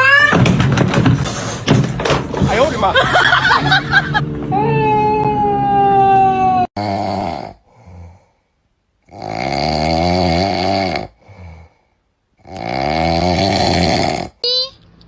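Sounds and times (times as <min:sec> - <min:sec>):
loud snoring: 0:06.8 - 0:08.4, 0:09.0 - 0:11.8, 0:12.4 - 0:14.4
quiet breath: 0:07.6 - 0:08.6.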